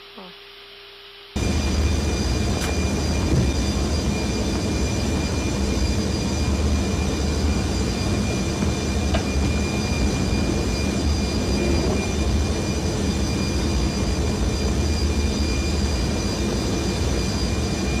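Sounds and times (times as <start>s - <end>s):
high whine of cockpit equipment: 0.0s - 18.0s
rushing rumble of airflow and engines: 1.4s - 18.0s.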